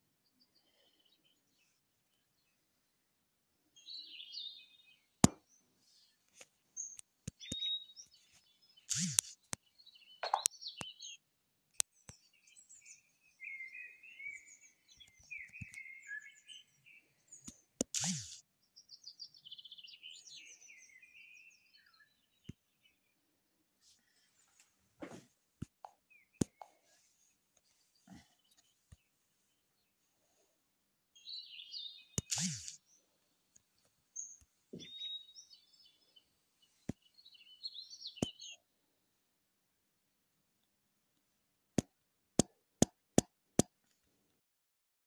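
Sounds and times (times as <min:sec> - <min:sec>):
birds chirping: 0:03.8 - 0:11.2, 0:11.8 - 0:23.2, 0:31.2 - 0:38.7
short noisy bursts: 0:08.9 - 0:09.3, 0:32.2 - 0:32.8
sharp clicks: 0:08.9 - 0:09.6, 0:17.5 - 0:18.4, 0:32.2 - 0:32.8.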